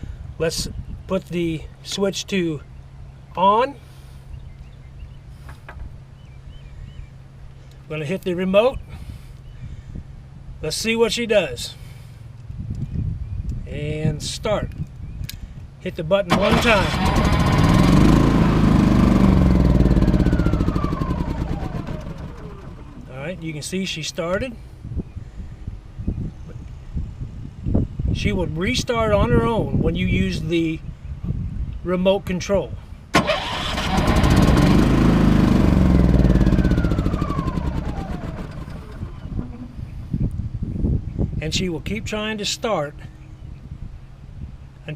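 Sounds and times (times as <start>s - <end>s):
generator engine running: 16.3s - 23.4s, 33.2s - 39.9s.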